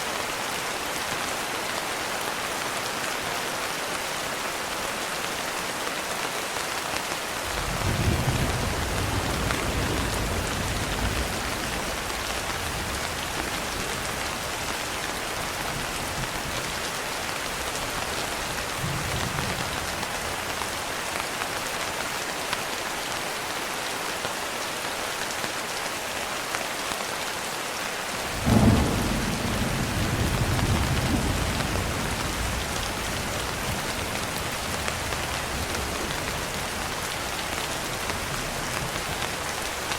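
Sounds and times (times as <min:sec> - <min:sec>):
heavy rain: 0:00.0 - 0:39.9
thunder rumbling: 0:07.5 - 0:14.7, 0:28.3 - 0:37.0
thunder clap: 0:28.4 - 0:34.1.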